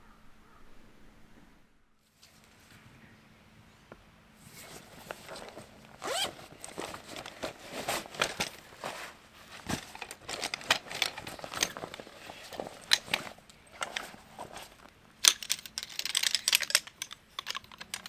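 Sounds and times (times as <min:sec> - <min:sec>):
camp gear rustling and clicking: 0:04.4 - 0:18.0.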